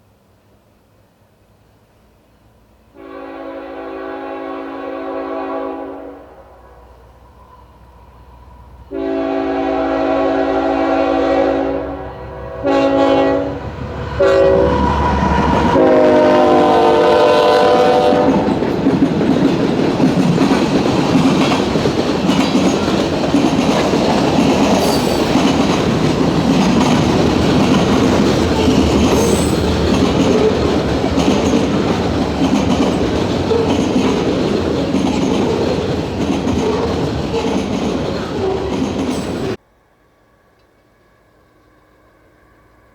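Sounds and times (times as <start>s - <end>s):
train air horn blasts: 2.9s - 7.1s, 8.9s - 18.6s
train wheels clattering on rails: 17.6s - 39.6s.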